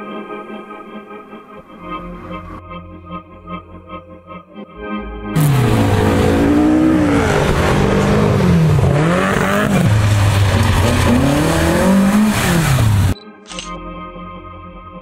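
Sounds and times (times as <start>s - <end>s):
race car engine revving: 5.4s - 13.2s.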